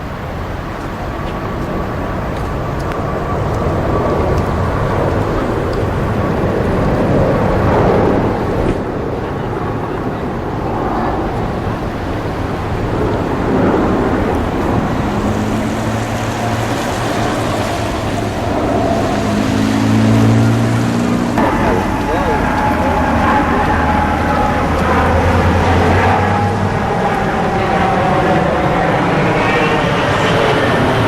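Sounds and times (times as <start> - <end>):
jet engines roaring: 0.0 - 31.0.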